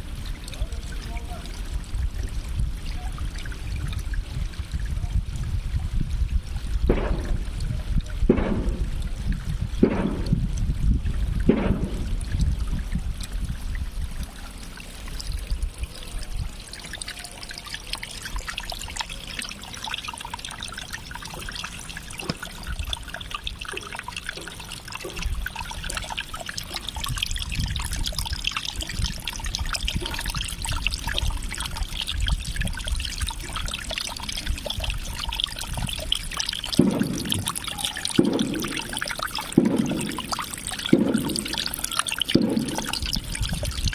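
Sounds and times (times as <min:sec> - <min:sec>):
water trickling and splashing: 0:00.0 - 0:43.9
short low thumps: 0:06.8 - 0:12.7, 0:36.8 - 0:37.6.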